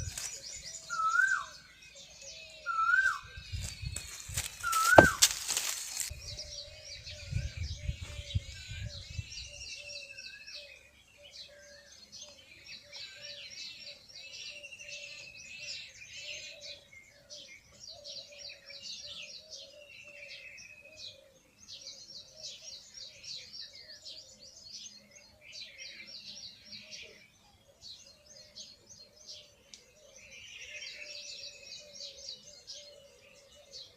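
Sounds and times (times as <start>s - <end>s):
small birds chirping: 0.0s - 33.9s
faint low bird call: 2.2s - 10.7s.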